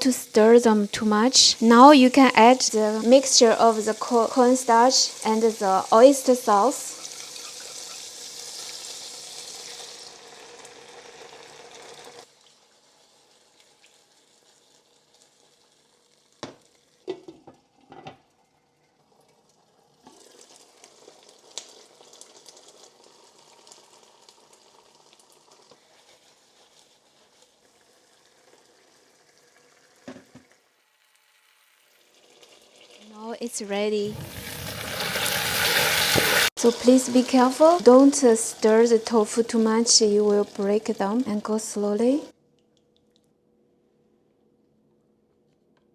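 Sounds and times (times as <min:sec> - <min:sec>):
food sizzling in a pan: 0:00.0 - 0:42.4.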